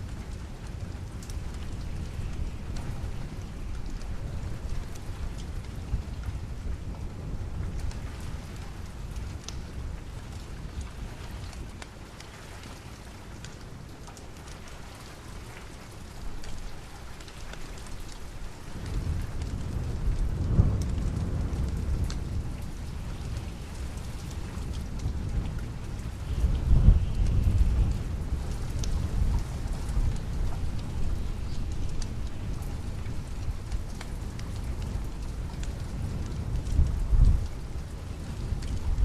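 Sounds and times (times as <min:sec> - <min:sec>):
rain falling: 0:00.0 - 0:39.0
thunder rumbling: 0:18.6 - 0:39.0.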